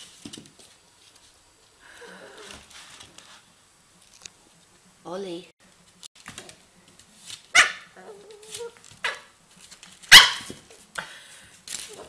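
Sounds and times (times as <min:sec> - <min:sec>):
puppy barking: 0:07.5 - 0:08.2, 0:09.0 - 0:09.3, 0:10.1 - 0:10.5
puppy yipping: 0:07.6 - 0:09.3, 0:10.1 - 0:10.5
puppy whining: 0:07.9 - 0:09.2.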